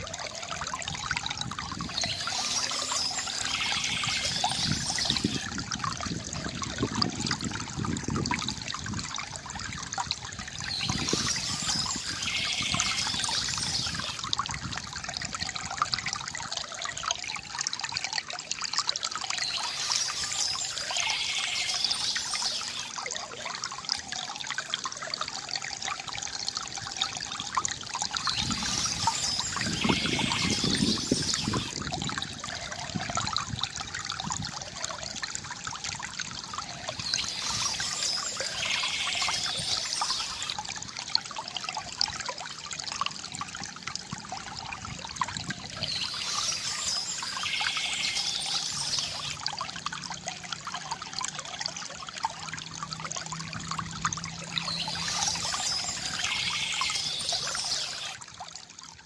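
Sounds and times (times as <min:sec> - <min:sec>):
bamboo fountain water trickling: 0:00.0 - 0:59.0.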